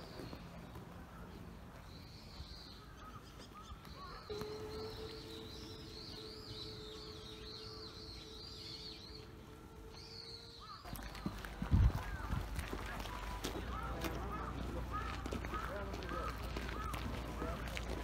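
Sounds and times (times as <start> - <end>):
small birds chirping: 0.0 - 18.0
steady low tone: 3.9 - 18.0.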